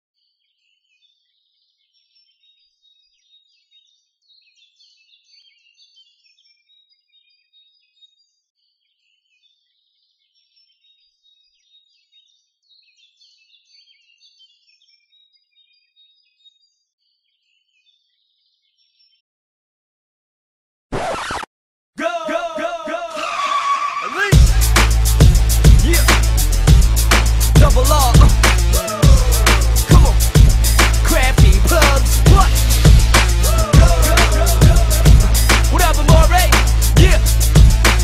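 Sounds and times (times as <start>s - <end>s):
small birds chirping: 0.2s - 19.2s.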